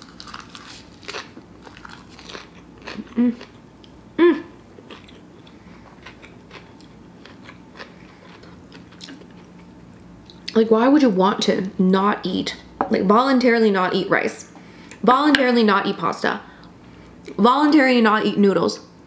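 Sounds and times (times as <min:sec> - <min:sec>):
person chewing food: 0:00.0 - 0:04.0, 0:04.7 - 0:10.6
person humming: 0:03.0 - 0:03.4, 0:04.2 - 0:04.6.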